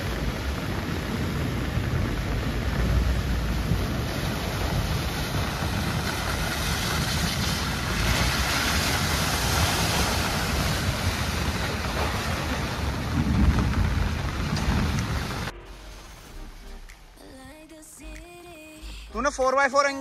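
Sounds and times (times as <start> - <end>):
wind buffeting microphone: 0.0 - 15.5
low rumble: 0.0 - 19.5
heavy rain hissing: 0.0 - 20.0.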